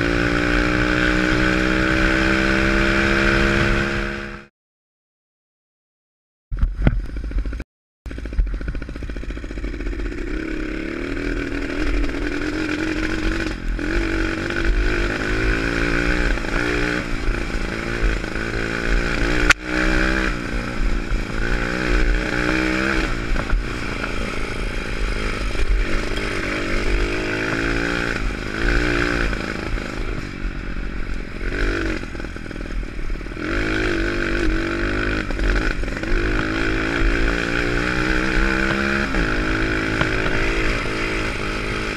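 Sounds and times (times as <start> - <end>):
motorbike engine revving: 0.0 - 4.5, 6.6 - 41.9
low rumble: 6.5 - 13.8.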